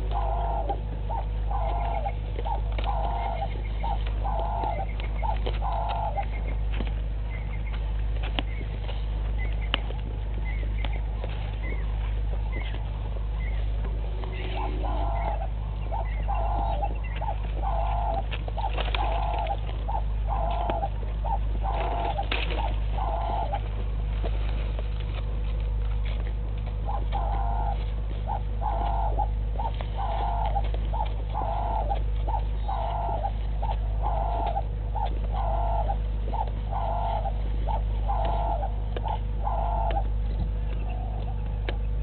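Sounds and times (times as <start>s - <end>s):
bird calling repeated short notes: 0.0s - 6.6s, 14.3s - 23.7s, 26.8s - 41.4s
low electrical hum: 0.0s - 42.0s.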